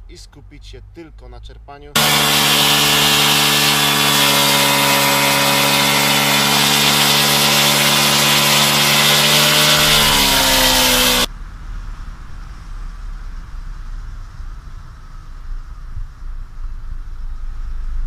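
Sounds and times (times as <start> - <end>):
small motorcycle engine revving: 2.0 - 11.3.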